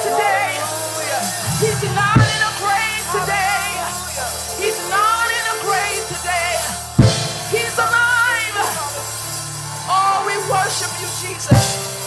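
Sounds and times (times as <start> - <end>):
singers holding wavering notes: 0.0 - 12.0
drum hit: 7.0 - 8.0.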